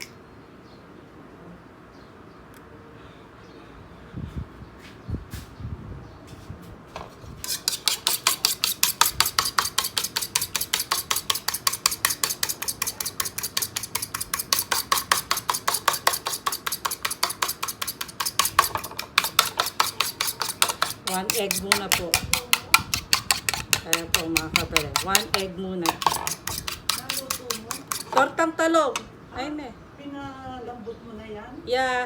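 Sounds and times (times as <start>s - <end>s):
egg beaten in a bowl: 7.4s - 28.4s.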